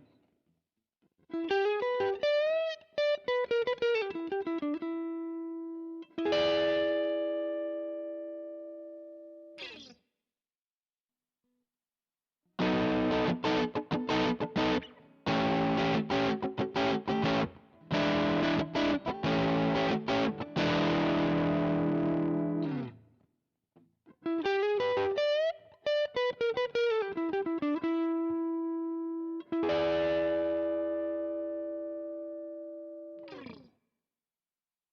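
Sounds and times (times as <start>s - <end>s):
electric guitar strumming and picking: 1.4s - 8.9s, 12.6s - 23.0s, 24.2s - 33.7s.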